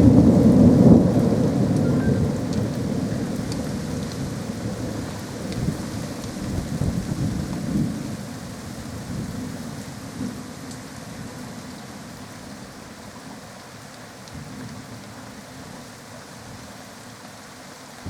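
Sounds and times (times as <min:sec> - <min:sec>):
thunder rumbling: 0:00.0 - 0:08.2.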